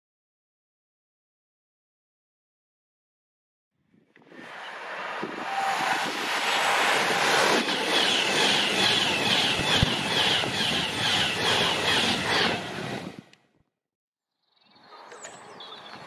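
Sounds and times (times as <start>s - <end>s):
train wheel and rail noise: 4.2s - 13.4s.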